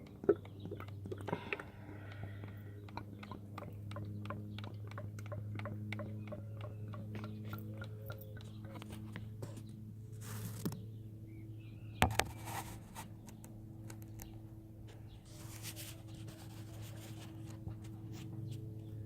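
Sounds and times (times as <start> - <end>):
steady low hum: 0.0 - 19.0
light clicks and scrapes: 8.7 - 10.8, 12.1 - 18.9.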